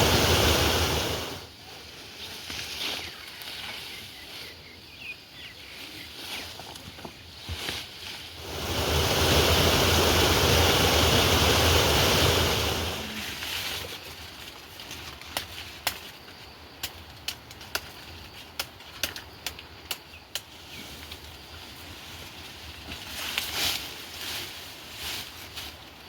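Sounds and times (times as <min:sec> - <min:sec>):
heavy rain: 0:00.0 - 0:01.4, 0:08.4 - 0:13.2
wind rumble on microphone: 0:08.4 - 0:13.5.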